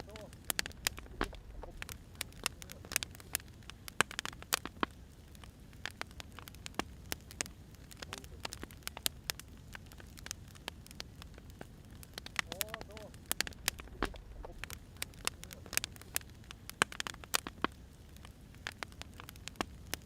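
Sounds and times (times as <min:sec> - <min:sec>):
firewood crackling and popping: 0:00.0 - 0:20.0
low rumble of flames: 0:00.0 - 0:20.0.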